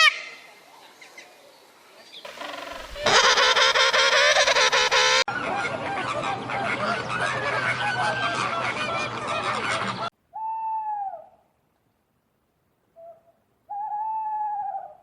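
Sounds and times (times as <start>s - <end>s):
waterfowl honking: 2.3s - 5.3s
chorus of animal calls: 2.3s - 11.3s.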